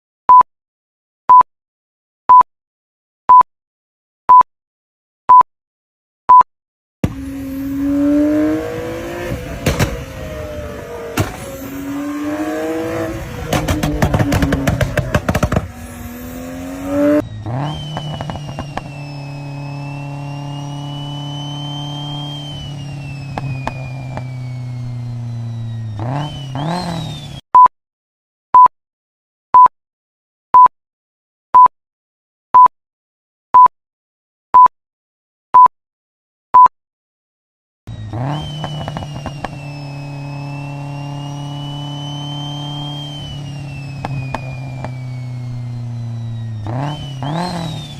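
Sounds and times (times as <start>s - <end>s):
car engine revving: 7.0s - 27.4s, 37.9s - 47.9s
car engine running with high whine: 7.0s - 27.4s, 37.9s - 47.9s
exhaust crackles: 7.1s - 27.3s.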